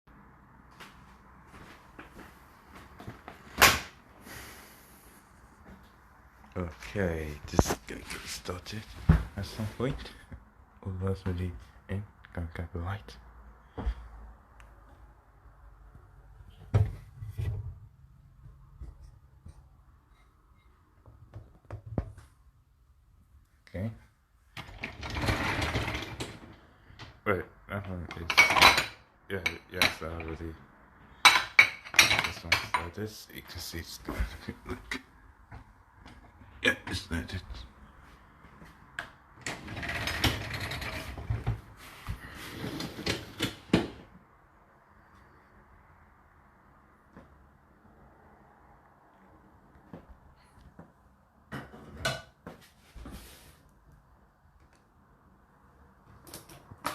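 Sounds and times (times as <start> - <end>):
dishwasher rack rattling and scraping: 24.6 - 26.5, 39.5 - 41.6.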